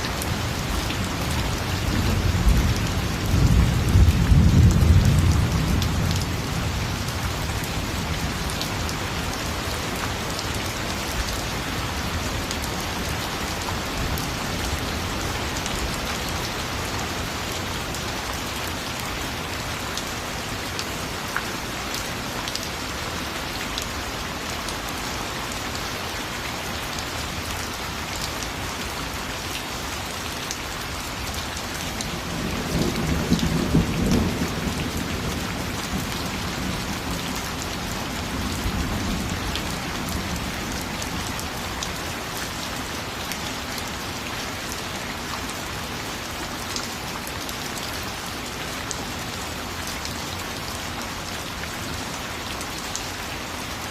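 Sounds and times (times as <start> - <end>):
steady rain falling: 0.0 - 53.9
low thunder rumble: 1.8 - 6.8.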